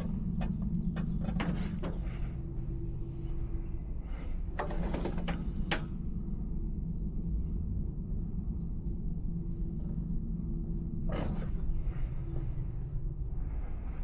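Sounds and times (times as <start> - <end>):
tools and parts clattering: 0.0 - 2.2
steady low rumble: 0.0 - 14.0.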